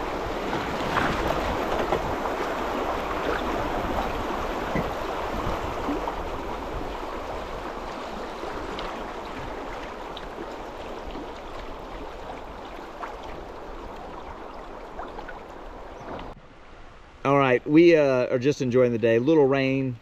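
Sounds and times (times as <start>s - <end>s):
small water splashes: 0.0s - 16.2s
river water rushing: 0.0s - 17.3s.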